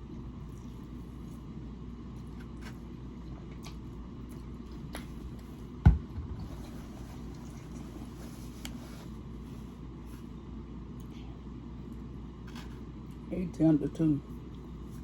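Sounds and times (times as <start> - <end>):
steady low hum: 0.0 - 15.0
faint chewing: 0.3 - 1.5, 2.1 - 5.6.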